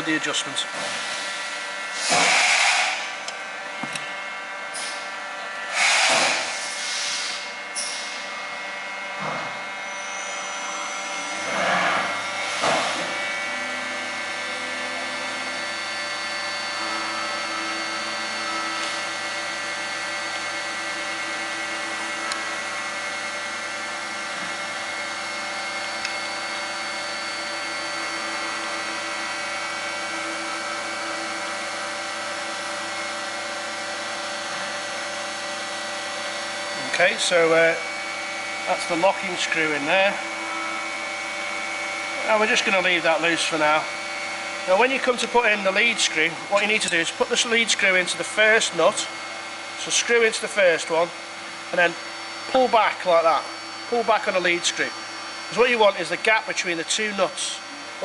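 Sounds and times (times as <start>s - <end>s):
workshop machine drone: 0.0s - 58.0s.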